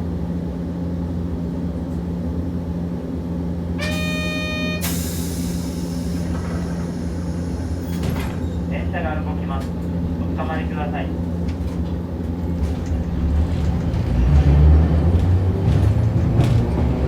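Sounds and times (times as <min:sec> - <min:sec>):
tram equipment humming: 0:00.0 - 0:17.0
buzzer: 0:03.8 - 0:05.0
compressed air hissing doors: 0:03.8 - 0:08.6.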